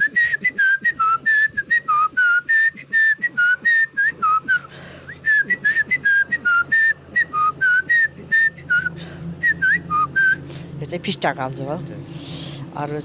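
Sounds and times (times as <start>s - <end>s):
person whistling bird call: 0.0s - 10.4s.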